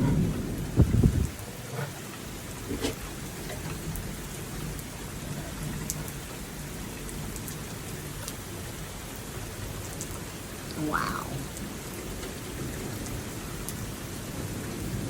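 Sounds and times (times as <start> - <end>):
low thunder rumble: 0.0 - 1.4
steady rain falling: 0.0 - 15.0.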